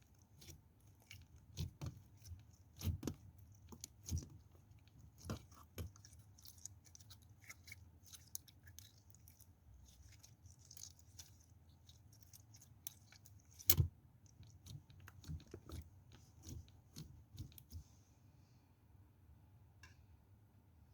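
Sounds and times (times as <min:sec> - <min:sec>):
knife cutting soap crunching: 0:00.0 - 0:17.8.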